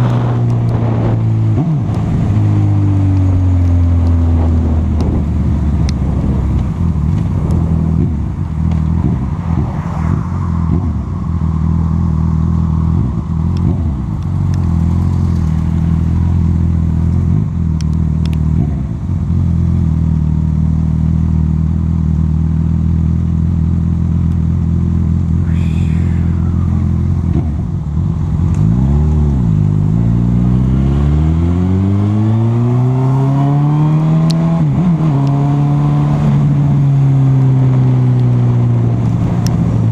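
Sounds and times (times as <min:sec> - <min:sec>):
motorcycle engine running: 0:00.0 - 0:09.8, 0:10.4 - 0:31.1.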